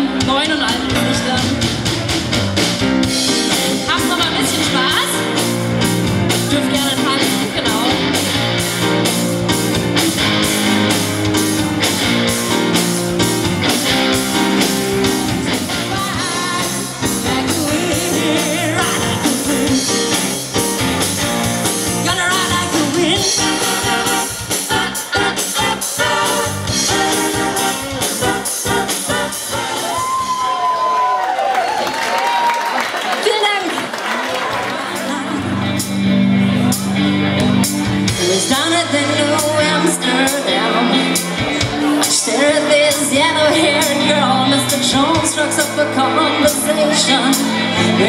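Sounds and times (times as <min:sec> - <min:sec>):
steady drumbeat: 0:00.0 - 0:30.6
live rock band playing: 0:00.0 - 0:31.1, 0:33.2 - 0:48.0.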